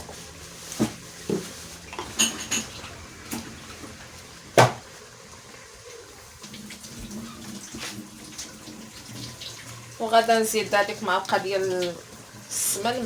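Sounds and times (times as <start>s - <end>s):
pots and utensils clinking: 0.0s - 6.0s.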